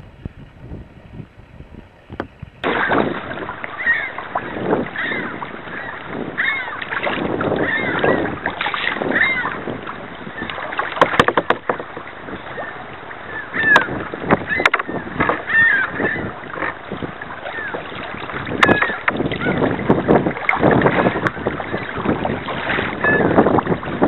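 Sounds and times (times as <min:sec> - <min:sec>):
kayak paddle splashing in water: 0:02.0 - 0:24.0.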